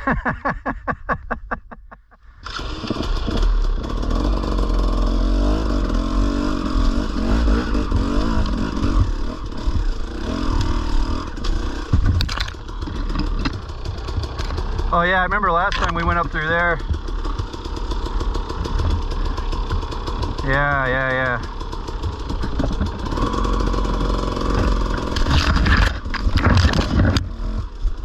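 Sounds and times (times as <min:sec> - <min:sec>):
motorcycle engine revving: 0:02.4 - 0:28.0
dirt bike engine ticking over: 0:06.8 - 0:28.0.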